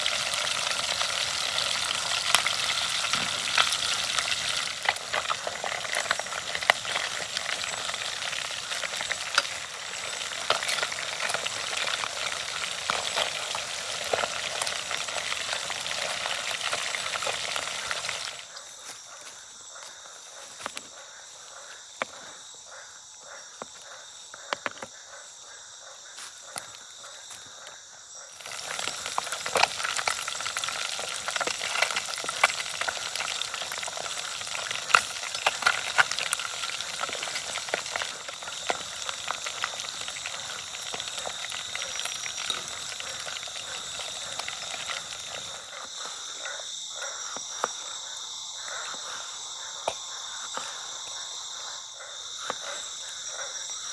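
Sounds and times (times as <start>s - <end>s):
oil sizzling and crackling: 0.0s - 18.5s, 28.3s - 46.2s
insects chirring: 0.0s - 53.9s.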